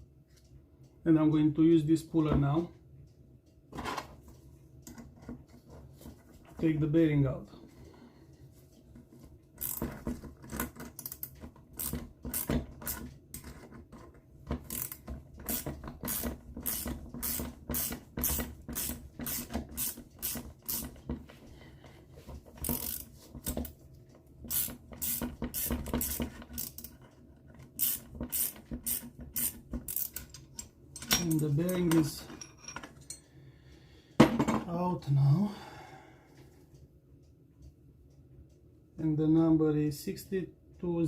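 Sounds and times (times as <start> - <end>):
bearing puller metal clicks and scrapes: 9.6 - 21.1, 22.5 - 23.7, 24.5 - 33.2.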